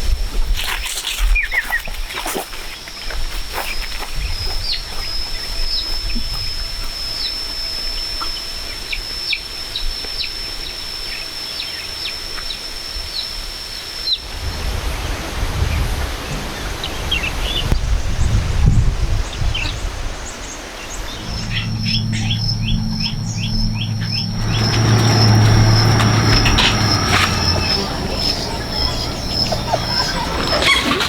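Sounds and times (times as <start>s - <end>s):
high-pitched whine: 4.1s - 18.3s, 19.4s - 31.0s
small birds chirping: 20.4s - 31.0s
low rumble: 20.9s - 31.0s.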